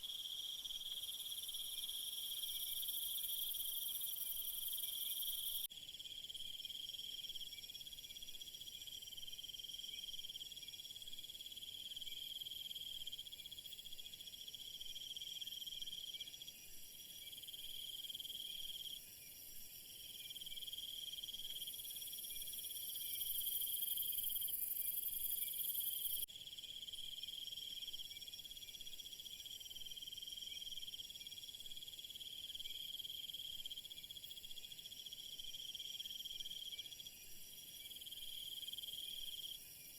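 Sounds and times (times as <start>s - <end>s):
insects trilling: 0.0s - 6.0s.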